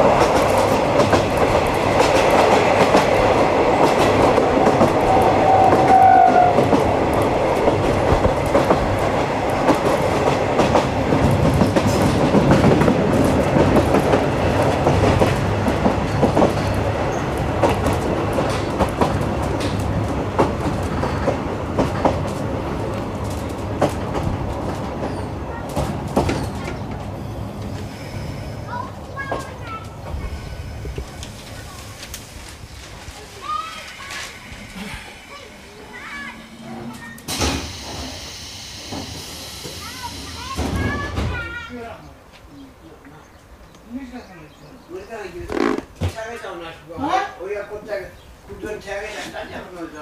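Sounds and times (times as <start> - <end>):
wheels clacking over rail joints: 0.0 - 27.9
train coach rolling noise: 0.0 - 50.0.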